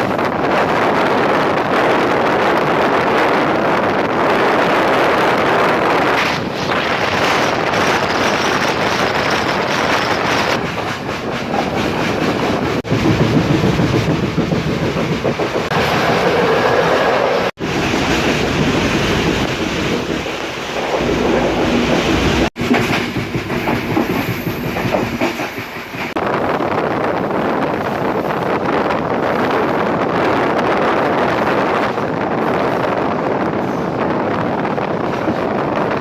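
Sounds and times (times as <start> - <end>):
train wheels rumbling on rail: 0.0 - 36.0
wind buffeting microphone: 0.0 - 36.0
wheels clattering over rails: 4.4 - 26.3.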